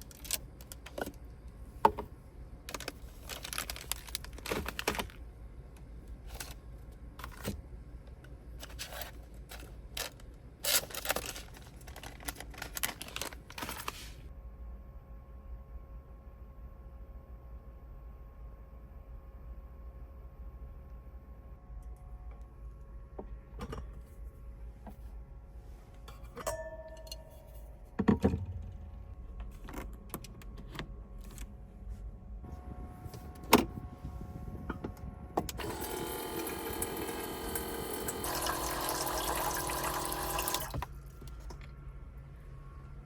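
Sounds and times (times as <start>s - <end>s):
running water: 36.4s - 40.7s.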